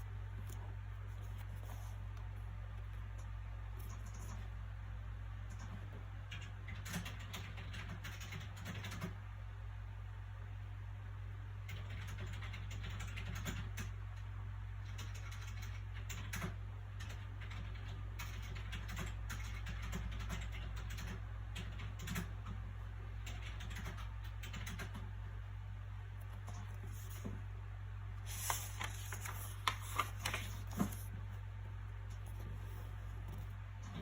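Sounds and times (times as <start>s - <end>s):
low background hum: 0.0s - 34.0s
book pages rustling: 0.4s - 2.4s, 26.4s - 27.4s, 28.2s - 31.3s.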